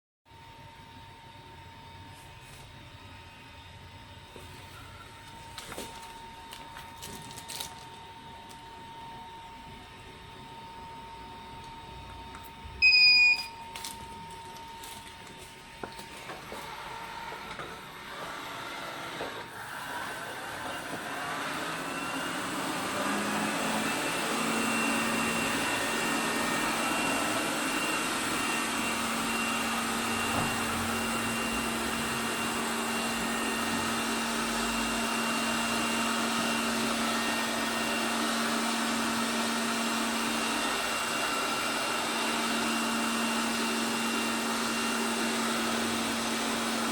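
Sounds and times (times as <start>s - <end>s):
short loud beep: 12.8s - 13.6s
robot vacuum motor humming: 15.8s - 46.9s.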